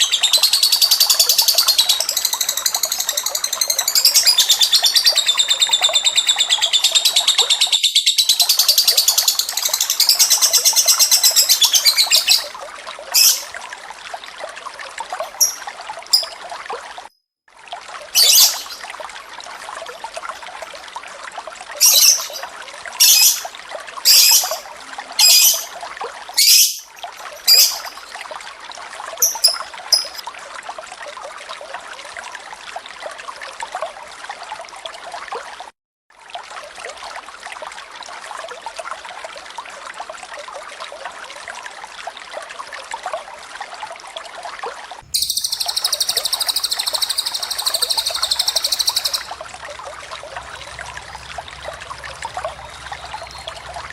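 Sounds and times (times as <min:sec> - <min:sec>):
rapid high bird trill: 0:00.0 - 0:12.5, 0:13.2 - 0:13.6, 0:18.2 - 0:18.9, 0:21.8 - 0:23.5, 0:24.1 - 0:25.8, 0:26.4 - 0:28.2, 0:29.2 - 0:30.2, 0:45.1 - 0:53.9
sharp high bird calls: 0:00.0 - 0:12.5, 0:13.2 - 0:13.6, 0:18.2 - 0:18.9, 0:21.8 - 0:23.5, 0:24.1 - 0:25.8, 0:26.4 - 0:28.2, 0:29.2 - 0:30.2, 0:45.1 - 0:53.9
flowing water: 0:00.0 - 0:53.9
faint bird chirps: 0:13.2 - 0:13.6, 0:18.2 - 0:18.9, 0:21.8 - 0:23.5, 0:24.1 - 0:25.8, 0:26.4 - 0:28.2, 0:29.2 - 0:30.2, 0:45.1 - 0:53.9.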